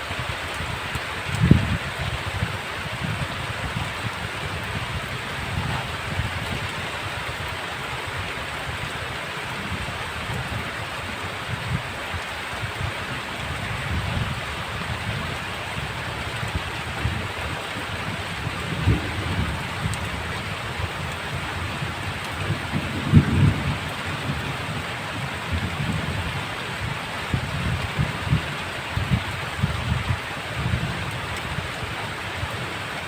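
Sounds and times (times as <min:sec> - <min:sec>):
heavy rain hiss: 0:00.0 - 0:33.0
low thunder rumbling: 0:00.7 - 0:07.0, 0:13.8 - 0:31.1.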